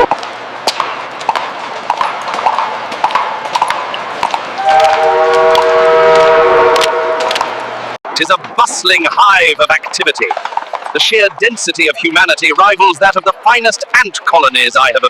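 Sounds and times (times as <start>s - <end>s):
knocks and footsteps: 0.0s - 7.7s
noisy hum: 0.0s - 10.3s
horn or whistle tone: 4.6s - 7.4s.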